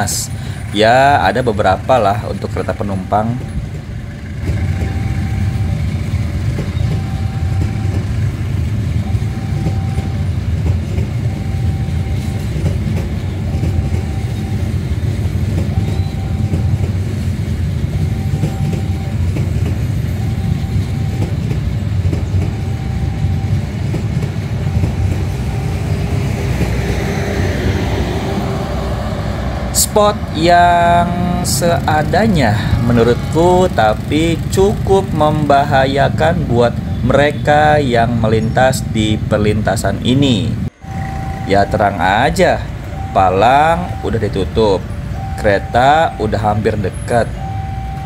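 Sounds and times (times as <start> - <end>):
level crossing warning tone: 0.0 - 48.0
train rumbling on rails: 0.0 - 48.0.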